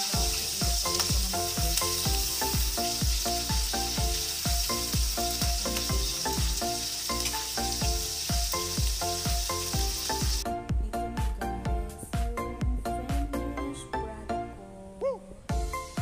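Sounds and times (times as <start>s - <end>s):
livers sizzling in oil: 0.0s - 10.4s
background music with beat: 0.0s - 14.0s, 15.5s - 16.0s.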